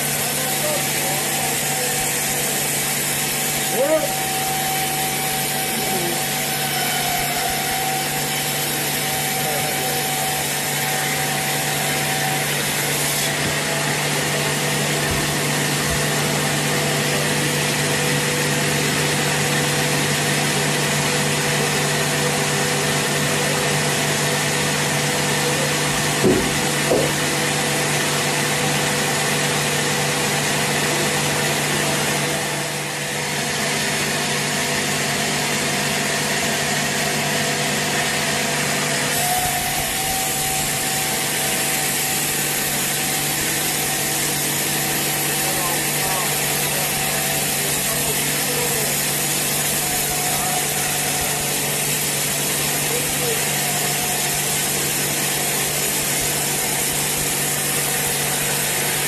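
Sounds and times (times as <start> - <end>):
sawmill saw cutting log: 0.0 - 59.0
brief knocks: 26.2 - 27.2.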